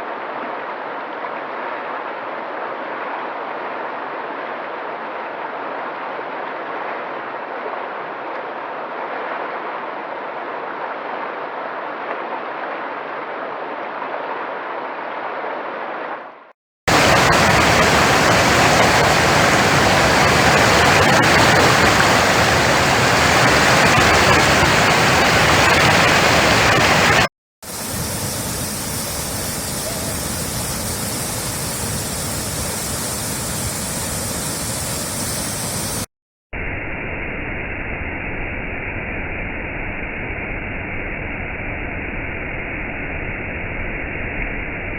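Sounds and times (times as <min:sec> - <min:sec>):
waterfall roaring: 0:16.9 - 0:36.1.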